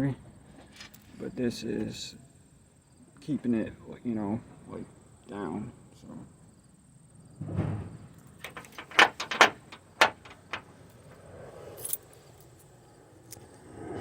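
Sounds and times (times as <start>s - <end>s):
sharp knocks and clanks: 7.4s - 10.8s.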